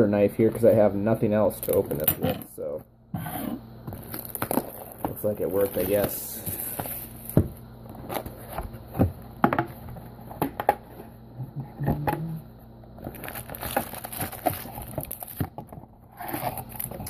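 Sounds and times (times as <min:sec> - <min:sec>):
foil packs rustling: 0:03.9 - 0:08.9, 0:13.0 - 0:17.0.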